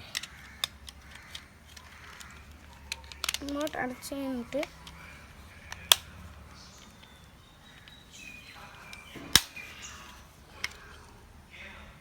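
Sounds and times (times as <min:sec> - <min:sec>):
faint handling: 0:00.0 - 0:12.0
plastic remote case snapping shut: 0:08.9 - 0:10.9.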